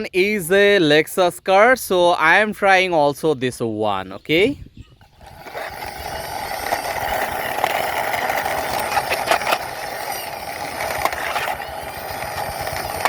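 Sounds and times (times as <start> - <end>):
toy car wheels rolling: 5.0 - 13.0.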